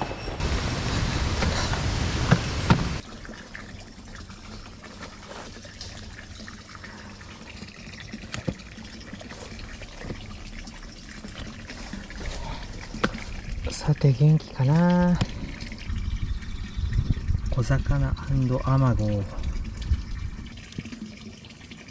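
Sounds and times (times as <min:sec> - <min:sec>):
stream water rushing: 0:00.0 - 0:03.1, 0:04.7 - 0:15.9.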